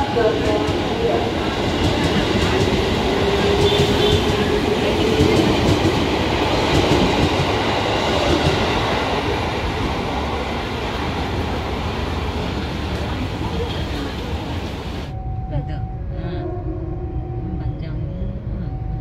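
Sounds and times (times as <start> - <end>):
train wheels clicking over rail joints: 1.6 - 9.8.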